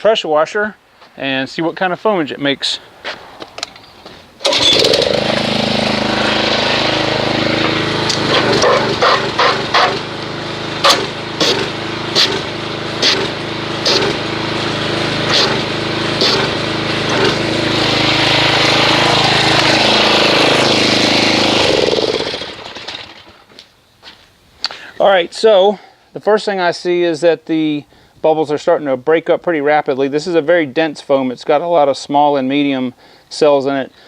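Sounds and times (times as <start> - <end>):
motor hum: 4.4 - 23.4
pressure washer spray hissing: 5.2 - 22.0.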